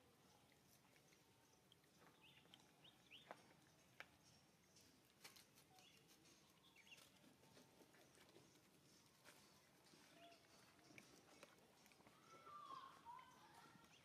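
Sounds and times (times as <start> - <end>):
faint high bird chirps: 0.2 - 7.3, 8.0 - 14.0.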